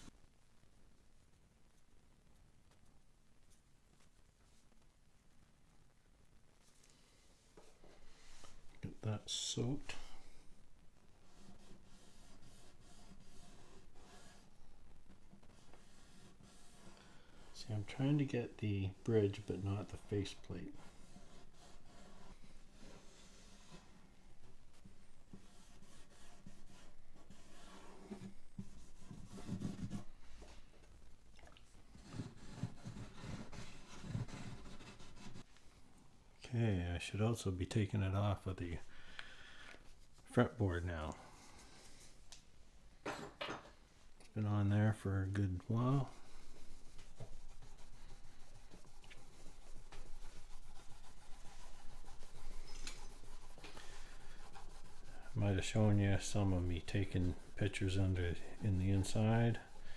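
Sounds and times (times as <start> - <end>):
rubbing on guitar wood: 11.2 - 30.6, 32.0 - 35.5, 45.4 - 59.9.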